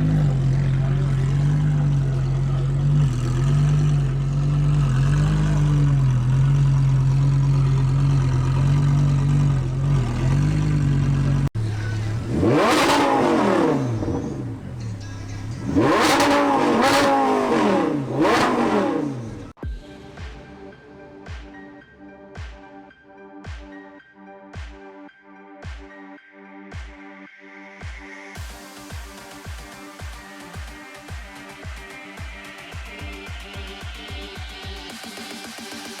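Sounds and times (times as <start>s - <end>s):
car engine holding steady note: 0.0s - 19.6s
sports car engine revving: 0.0s - 19.6s.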